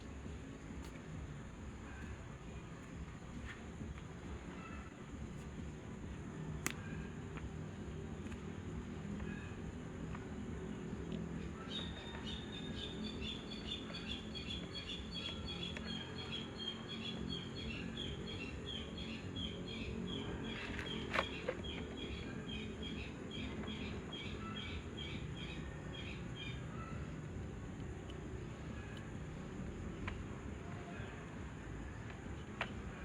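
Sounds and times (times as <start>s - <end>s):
low background noise: 0.0s - 33.0s
bird chirping: 9.1s - 27.2s.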